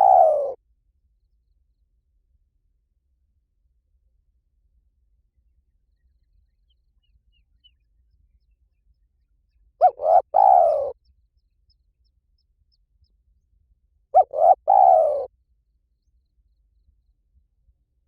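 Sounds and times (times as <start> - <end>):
dove cooing: 0.0 - 0.6, 9.8 - 11.0, 14.2 - 15.3.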